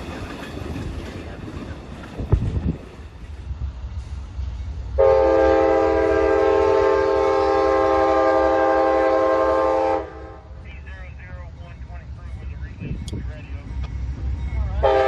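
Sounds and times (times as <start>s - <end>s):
passing train rumble: 0.0s - 15.0s
locomotive air horn blast: 5.0s - 10.6s, 14.8s - 15.0s.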